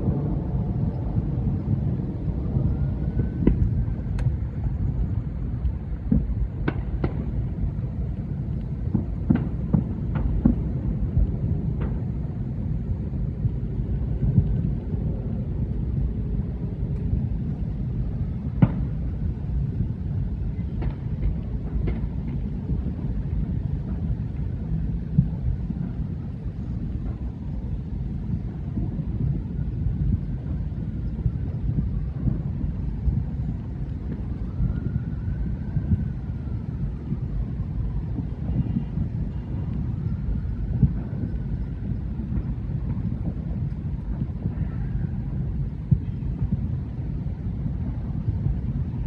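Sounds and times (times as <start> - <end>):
distant fireworks rumble: 0.0 - 49.0
firework bangs and pops: 3.4 - 4.7, 5.4 - 12.6, 18.4 - 19.5, 20.1 - 27.3, 40.7 - 45.2.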